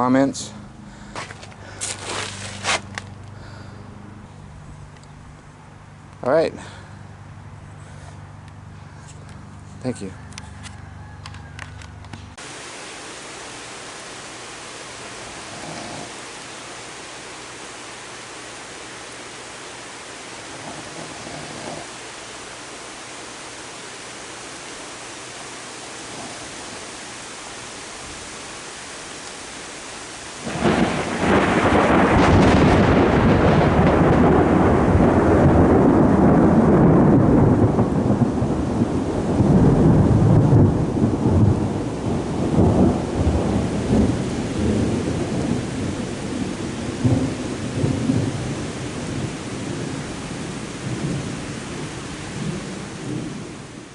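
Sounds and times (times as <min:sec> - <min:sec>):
steady rain hiss: 0:00.0 - 0:53.9
loud rolling thunderclap: 0:30.4 - 0:53.9.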